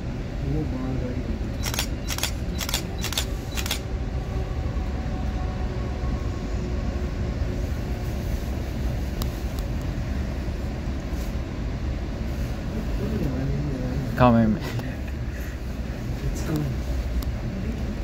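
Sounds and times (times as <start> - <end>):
freight train rumbling past: 0.0 - 18.0
sharp clicks: 1.6 - 3.8.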